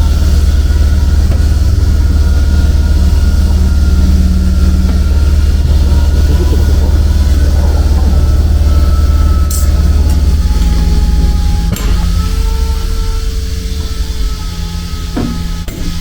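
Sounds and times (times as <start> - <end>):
low mechanical machine drone: 0.0 - 16.0.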